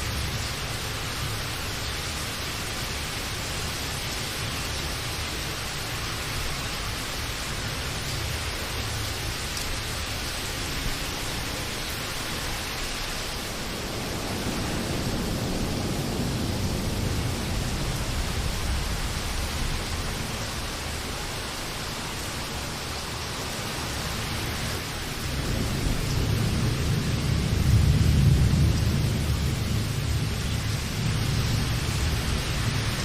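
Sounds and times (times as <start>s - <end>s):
steady rain hissing: 0.0s - 33.0s
low rolling thunder: 12.4s - 21.6s, 25.0s - 33.0s.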